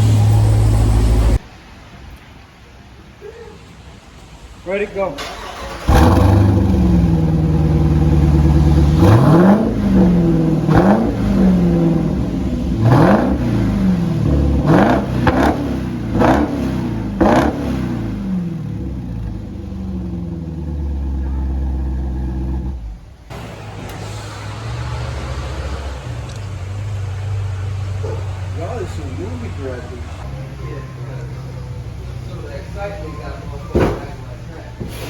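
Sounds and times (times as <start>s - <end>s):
car engine accelerating hard: 0.0s - 1.4s, 5.4s - 32.8s
exhaust cracks at gear changes: 5.5s - 24.0s, 26.0s - 27.2s.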